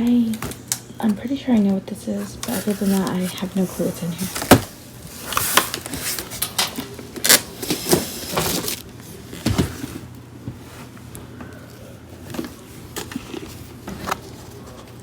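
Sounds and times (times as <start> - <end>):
box being opened by hand: 2.4 - 8.8.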